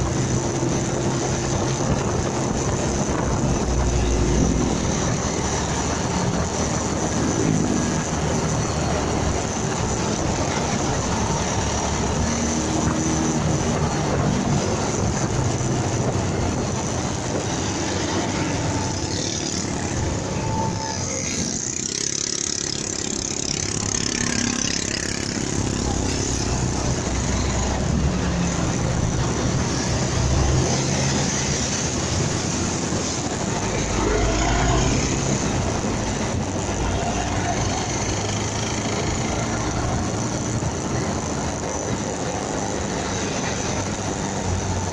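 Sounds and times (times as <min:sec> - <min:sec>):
motorcycle engine running: 0:00.0 - 0:34.1
road noise: 0:00.0 - 0:44.9
wind noise: 0:00.0 - 0:44.9.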